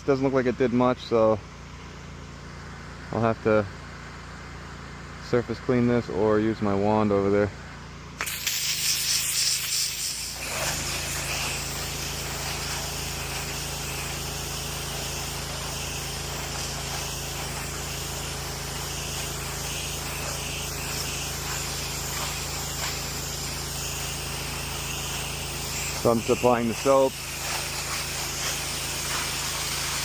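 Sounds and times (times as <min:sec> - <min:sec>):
pressure washer machine hum: 0:00.0 - 0:05.3, 0:07.5 - 0:30.0
pressure washer spray hissing: 0:08.2 - 0:30.0.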